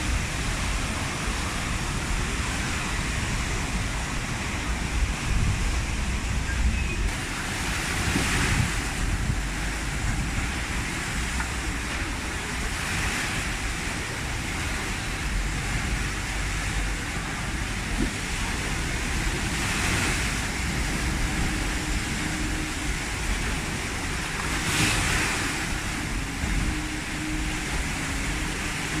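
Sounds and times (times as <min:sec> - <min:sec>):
big waves breaking: 0:00.0 - 0:29.0
strong wind on microphone: 0:00.0 - 0:29.0.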